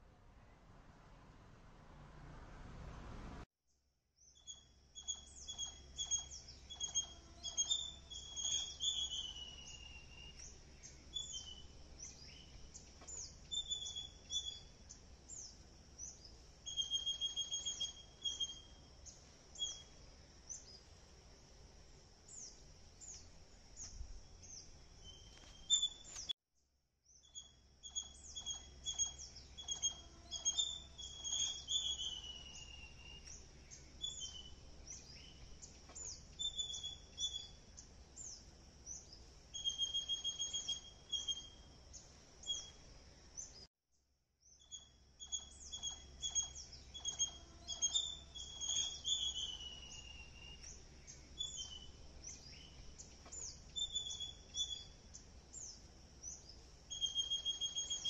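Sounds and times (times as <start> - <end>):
faint low hum: 0.0 - 3.5
songbirds chirping and trilling: 4.2 - 26.3, 27.1 - 43.7, 44.4 - 58.0.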